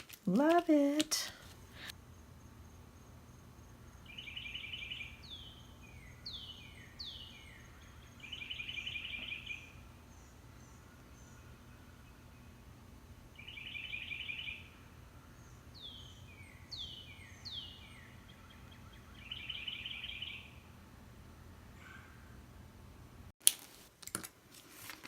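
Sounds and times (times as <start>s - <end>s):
songbirds singing faintly: 1.6s - 23.1s
bird trill: 4.1s - 12.6s, 13.4s - 20.6s.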